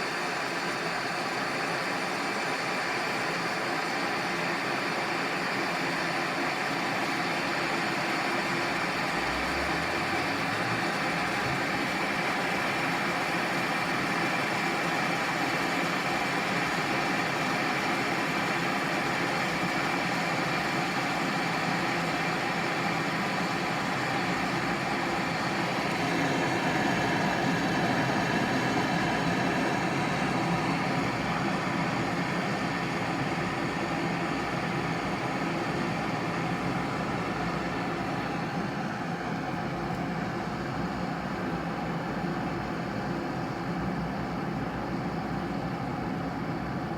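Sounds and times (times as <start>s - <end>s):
electric kettle heating water: 0.0s - 46.9s.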